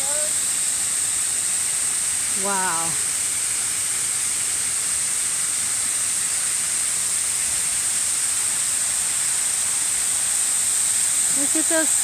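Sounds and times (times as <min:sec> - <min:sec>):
waterfall rushing: 0:02.3 - 0:03.2.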